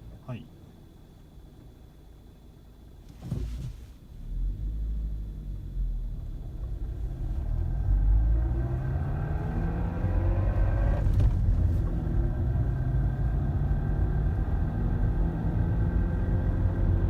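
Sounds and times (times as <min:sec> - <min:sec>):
brief thump: 0:03.1 - 0:03.9
car engine accelerating: 0:03.3 - 0:17.0.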